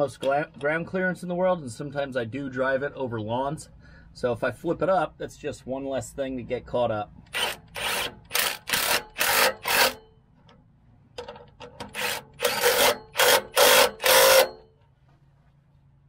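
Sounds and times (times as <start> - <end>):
hand tool rasping strokes: 7.4 - 10.0, 12.0 - 14.6.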